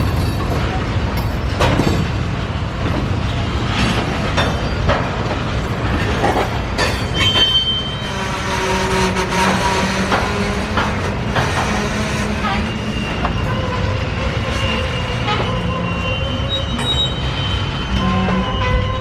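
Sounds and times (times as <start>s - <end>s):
clanks of wheels and couplings: 0.0s - 19.0s
rail cars rumbling: 0.0s - 19.0s
high squeal: 7.1s - 9.1s, 11.7s - 19.0s
low squealing tone: 7.1s - 19.0s.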